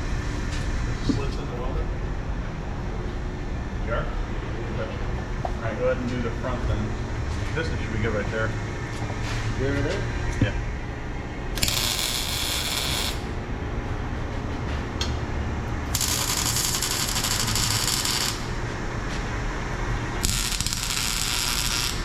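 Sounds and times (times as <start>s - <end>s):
welder crackling hiss: 11.6s - 13.3s, 15.9s - 18.6s, 20.2s - 22.0s.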